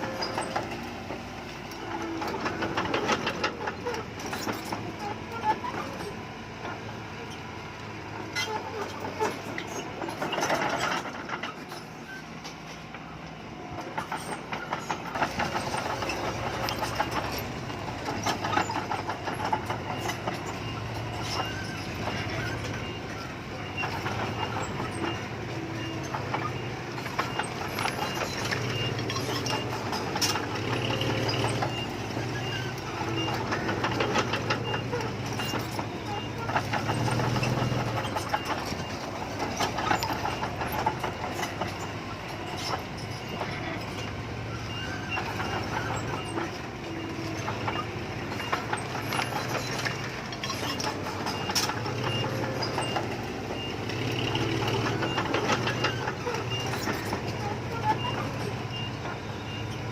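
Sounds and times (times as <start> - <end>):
diesel engine running: 0.0 - 59.9
metal clanking and rattling: 13.8 - 59.8.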